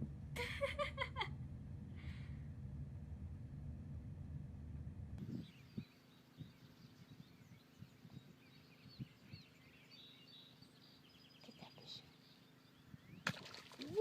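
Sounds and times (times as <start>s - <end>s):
birds chirping: 5.2s - 14.0s.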